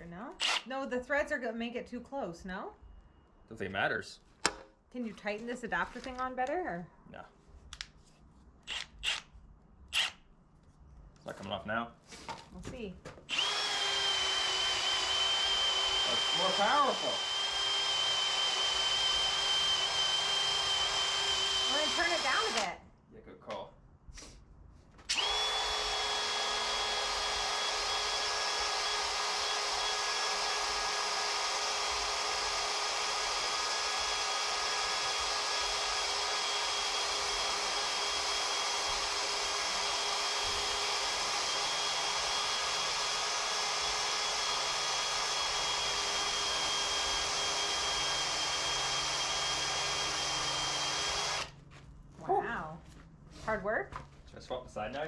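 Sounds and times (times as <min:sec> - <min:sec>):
power drill whining: 0:00.4 - 0:00.7, 0:08.7 - 0:09.3, 0:09.9 - 0:10.2, 0:13.3 - 0:22.8, 0:25.1 - 0:51.6.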